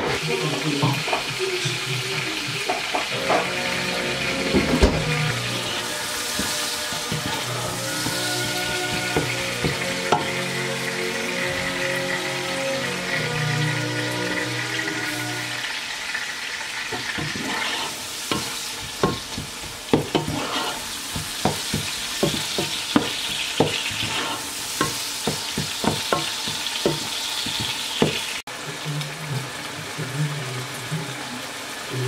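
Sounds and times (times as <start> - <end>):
food sizzling in a pot: 0.0 - 32.0
wooden spoon knocking on pot: 6.3 - 10.4, 18.3 - 20.4, 21.1 - 28.3.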